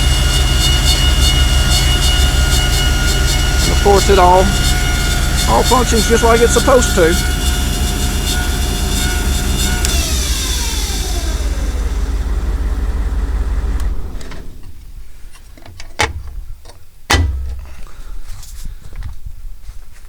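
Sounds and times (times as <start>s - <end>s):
machine noise: 0.0s - 14.6s
generator humming and spinning down: 0.0s - 14.9s
sharp knocks: 17.1s - 17.9s.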